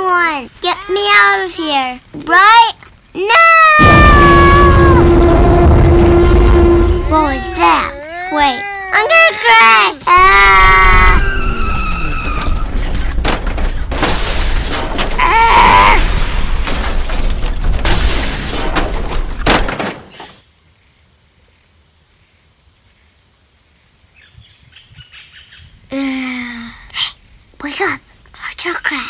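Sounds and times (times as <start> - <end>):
brief cry: 3.5 - 9.2
short falling tones: 3.8 - 8.0
toy truck crashing and rattling: 11.1 - 20.4.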